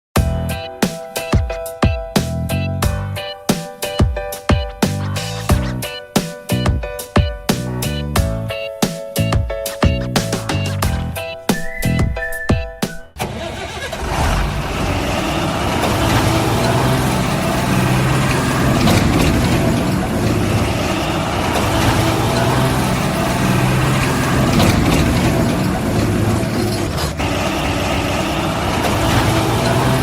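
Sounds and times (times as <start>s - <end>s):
heavy vehicle engine running: 13.2s - 30.0s.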